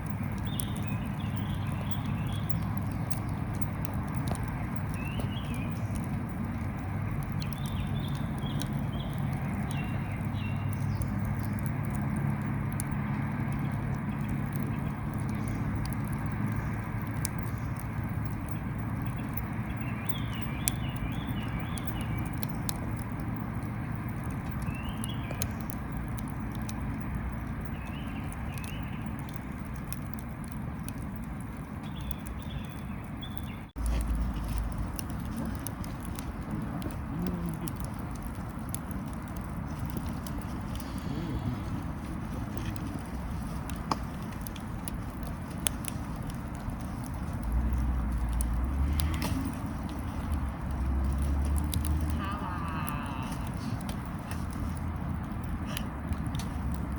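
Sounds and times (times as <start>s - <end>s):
wood fire crackling and popping: 0.0s - 56.9s.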